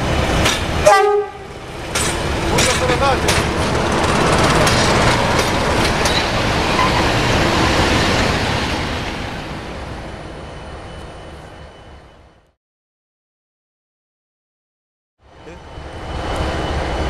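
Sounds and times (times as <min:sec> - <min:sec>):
train coaches rolling past: 0:00.0 - 0:12.5, 0:15.2 - 0:17.0
wheels clicking over rail joints: 0:01.9 - 0:06.9.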